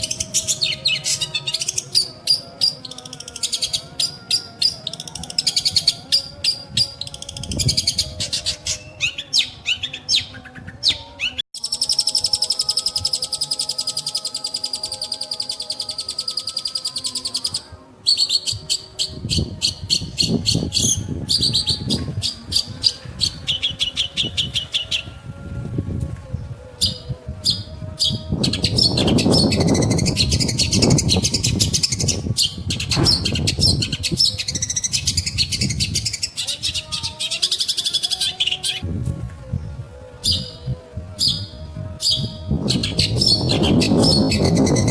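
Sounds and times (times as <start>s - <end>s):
low rumbling noise: 25.2s - 34.6s.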